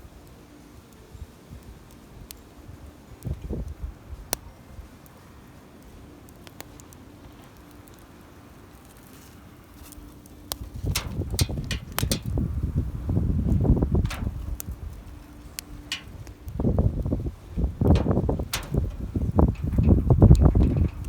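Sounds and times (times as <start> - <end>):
campfire crackling: 0.0 - 21.0
campfire popping: 0.2 - 21.0
rapid clicks: 15.5 - 16.4, 17.8 - 21.0
close rustling and clattering: 17.6 - 21.0.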